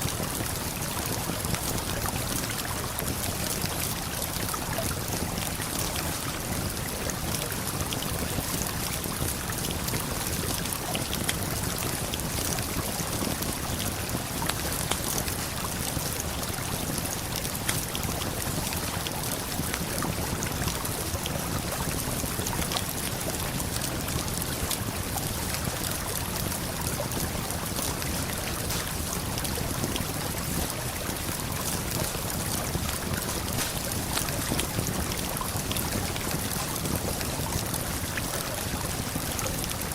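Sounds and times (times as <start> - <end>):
campfire crackling: 23.7 - 38.8
river and waterfall rushing: 33.0 - 35.1.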